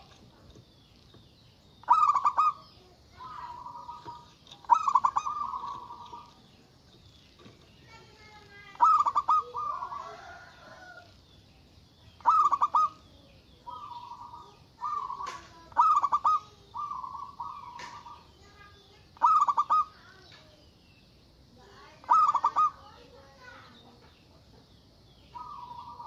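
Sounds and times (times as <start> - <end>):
dove cooing: 1.8 - 6.8, 7.9 - 11.2, 12.2 - 20.2, 22.0 - 23.1, 25.3 - 26.0.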